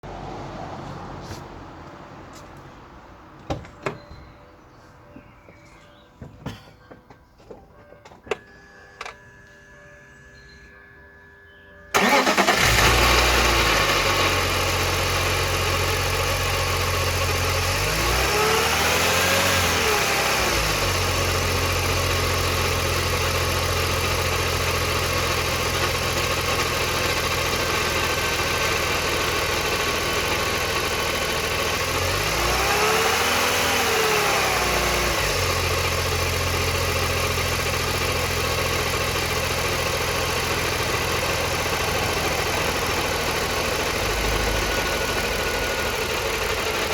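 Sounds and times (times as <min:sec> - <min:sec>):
car engine idling: 0:11.9 - 0:46.9
engine revving: 0:12.0 - 0:46.9
exhaust rattle: 0:12.0 - 0:46.9.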